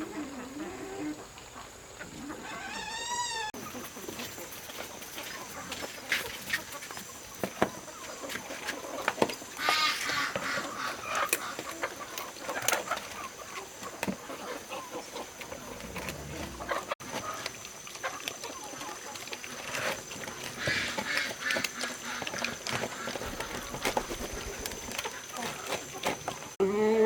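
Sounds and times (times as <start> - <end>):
chickens clucking: 0.0 - 26.6.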